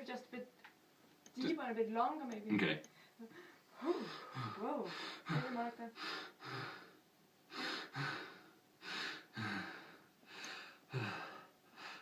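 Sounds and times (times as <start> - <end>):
man breathing heavily: 3.3 - 12.0
man gasping: 7.5 - 12.0.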